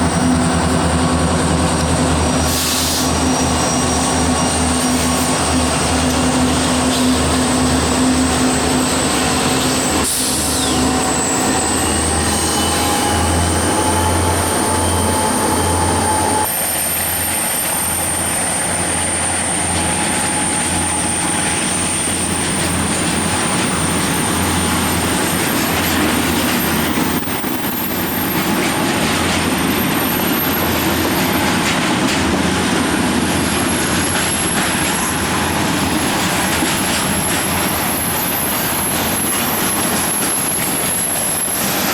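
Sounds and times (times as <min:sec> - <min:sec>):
freight train rumbling on rails: 0:00.0 - 0:41.9
high-pitched wheel squeal: 0:02.4 - 0:05.5, 0:06.8 - 0:31.6.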